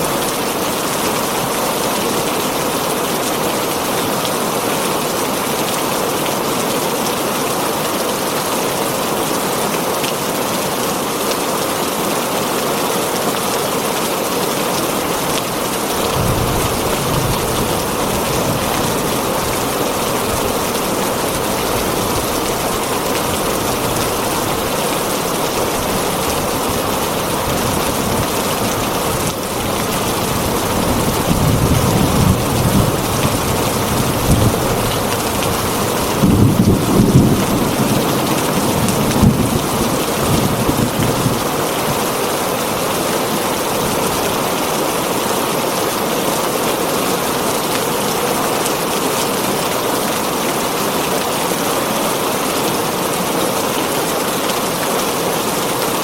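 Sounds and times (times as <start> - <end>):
heavy rain on a tin roof: 0.0 - 56.0
low rolls of thunder: 30.5 - 41.4.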